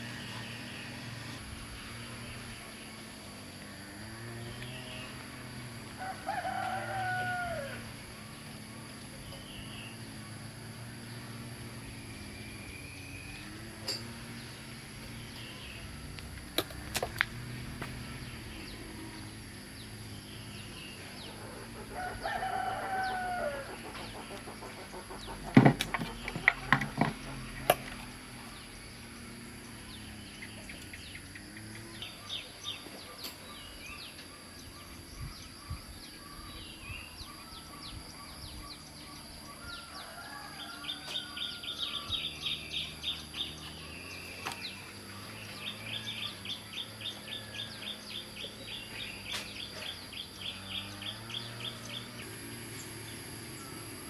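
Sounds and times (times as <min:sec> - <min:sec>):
rooster crowing: 0:05.8 - 0:08.3, 0:21.1 - 0:27.5, 0:39.5 - 0:43.0
sharp clicks and knocks: 0:24.0 - 0:28.1.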